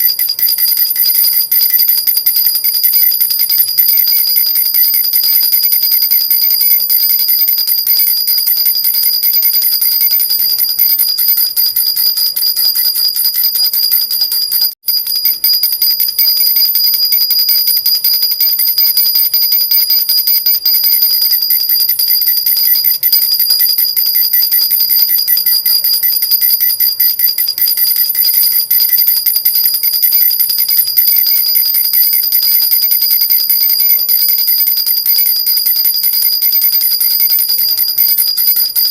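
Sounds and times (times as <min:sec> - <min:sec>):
baby rattle bells jingling: 0:35.8 - 0:38.9.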